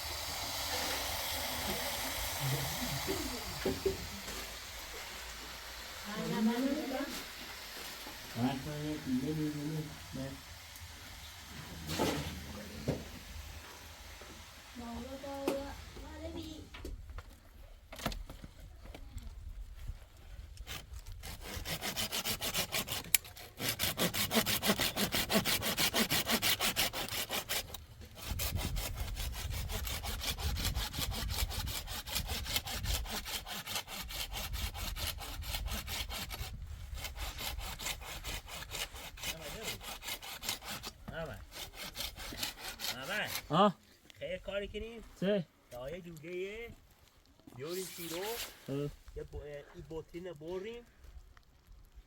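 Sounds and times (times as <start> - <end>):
rapid scraping strokes: 20.7 - 43.5, 47.6 - 49.0.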